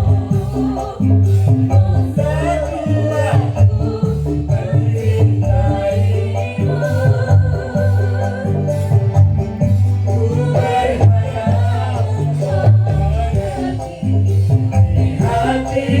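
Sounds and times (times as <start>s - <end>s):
live band music: 0.0s - 16.0s
person singing: 10.2s - 16.0s.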